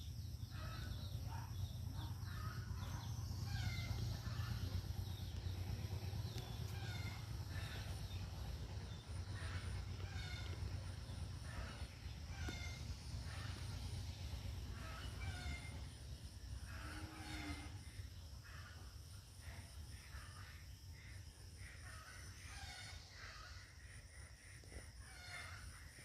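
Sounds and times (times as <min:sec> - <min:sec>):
birds chirping: 0:00.0 - 0:14.0
steady low rumble: 0:00.0 - 0:16.8.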